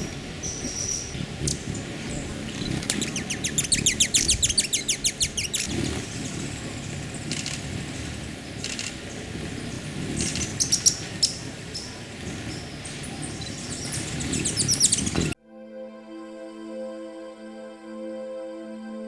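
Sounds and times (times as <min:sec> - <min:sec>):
bird trilling chirps: 0:00.0 - 0:07.7, 0:10.2 - 0:15.4
steady low rumble: 0:00.0 - 0:15.4.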